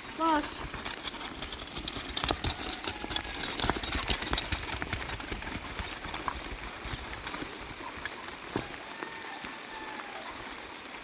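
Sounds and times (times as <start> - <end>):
sharp taps and knocks: 0.7 - 8.8
heavy rain falling: 5.0 - 11.0.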